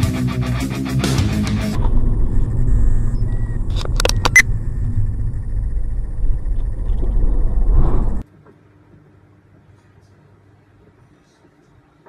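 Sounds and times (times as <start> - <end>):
car road and engine rumble: 1.6 - 8.2
sharp clicks: 3.2 - 5.1.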